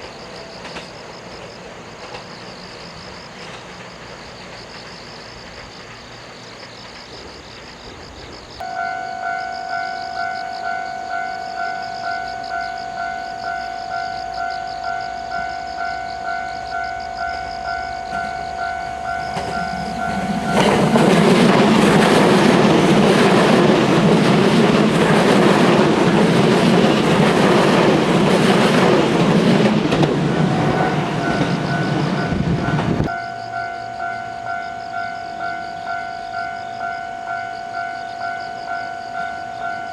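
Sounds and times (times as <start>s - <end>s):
train passing loudly: 0.0s - 39.9s
level crossing warning bell: 8.6s - 39.9s.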